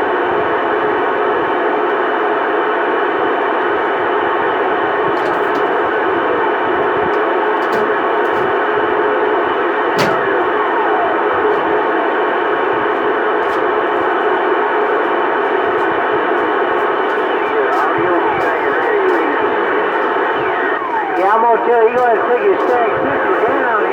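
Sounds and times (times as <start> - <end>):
radio hiss with whining tones: 1.3 - 23.9
radio click: 12.8 - 23.9.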